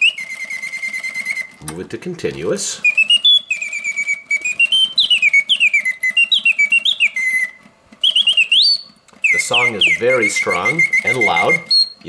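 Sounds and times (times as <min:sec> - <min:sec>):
mechanical bird whistle warbling: 0:00.0 - 0:01.6, 0:02.8 - 0:12.0
clockwork ticking: 0:02.8 - 0:12.0.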